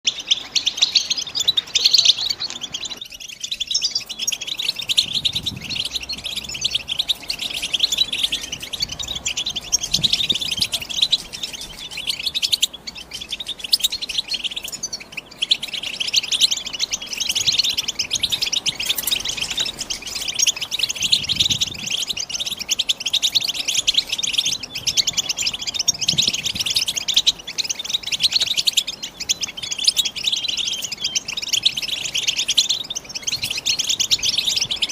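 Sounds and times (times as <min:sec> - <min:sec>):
bird twittering song: 0:00.0 - 0:34.9.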